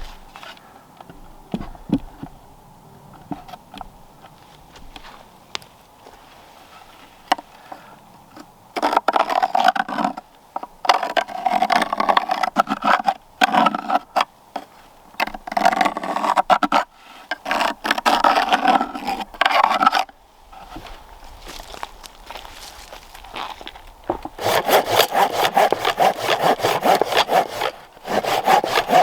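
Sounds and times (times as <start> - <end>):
hand tool scraping wood: 10.9 - 29.0.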